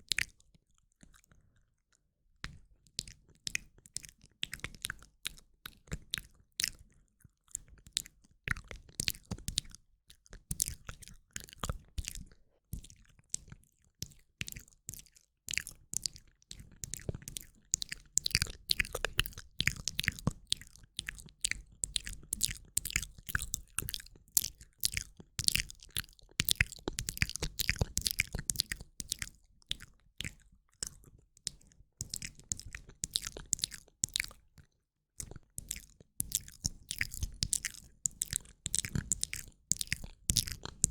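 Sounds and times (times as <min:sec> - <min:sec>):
wet mouth clicks: 0:00.0 - 0:01.4, 0:07.5 - 0:40.9.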